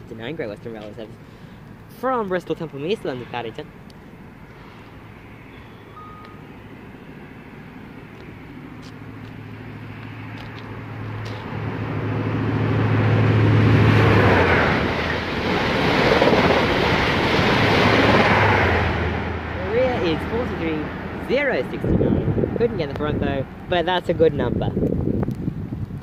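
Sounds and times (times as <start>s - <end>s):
diesel engine drone: 0.0s - 26.0s
train rushing past: 9.5s - 22.7s.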